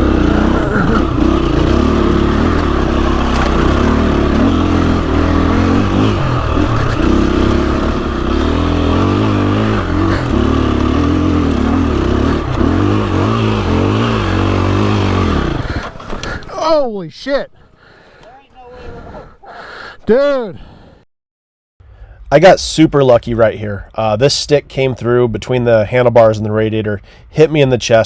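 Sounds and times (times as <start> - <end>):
dirt bike engine revving: 0.0 - 16.5
bike clattering over rough trail: 0.0 - 16.7.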